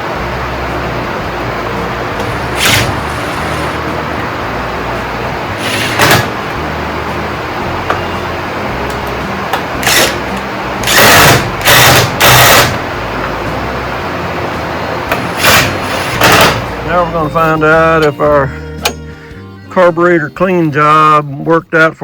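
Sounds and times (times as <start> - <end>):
small power tool bursts: 2.2 - 4.0, 5.5 - 6.4, 9.8 - 12.9, 15.2 - 16.7.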